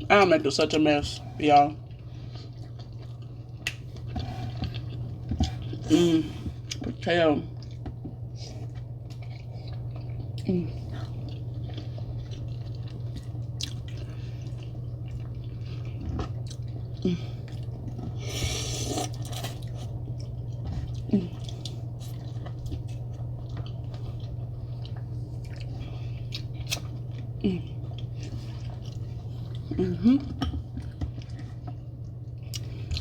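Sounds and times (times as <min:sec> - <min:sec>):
steady low hum: 0:00.0 - 0:33.0
wet chewing and sucking: 0:01.8 - 0:06.8, 0:07.5 - 0:33.0
noisy slurp: 0:08.3 - 0:20.0.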